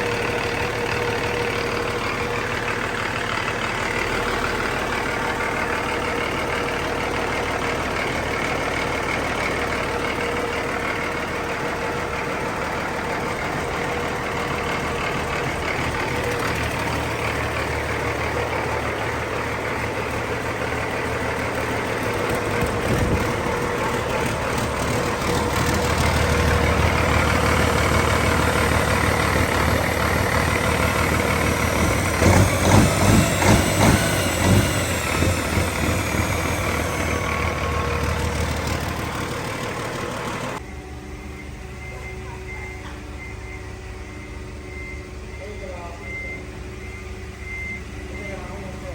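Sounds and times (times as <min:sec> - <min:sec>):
diesel engine running: 0:00.0 - 0:48.9
quick engine pulses: 0:12.5 - 0:40.6.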